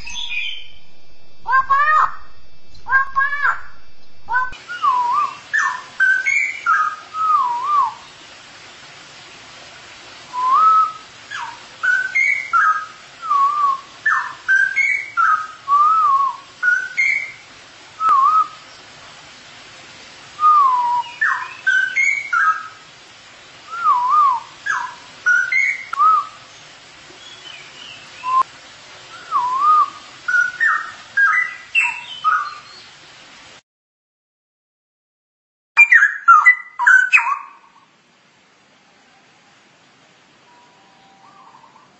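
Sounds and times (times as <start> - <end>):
bird warbling whistled song: 0.0 - 8.0, 10.4 - 17.4, 20.5 - 22.8, 23.7 - 26.4, 27.2 - 28.5, 29.2 - 32.8, 35.8 - 37.6
faint steady hiss: 0.0 - 33.6, 35.8 - 41.9.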